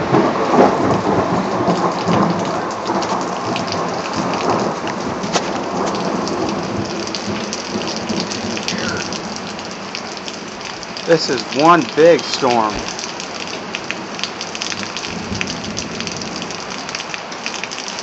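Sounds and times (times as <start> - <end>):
roll of thunder: 0.0 - 9.7
heavy rain pouring: 0.0 - 18.0.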